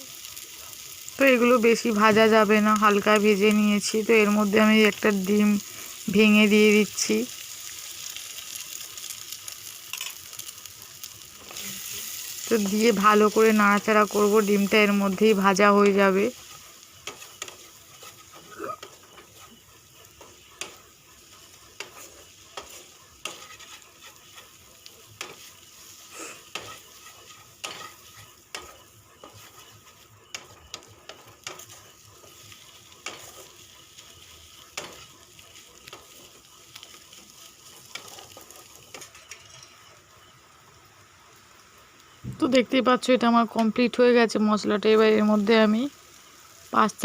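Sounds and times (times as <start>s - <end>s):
faint sizzle of frying: 0.0s - 47.0s
utensil scraping and tapping pan: 26.4s - 29.5s.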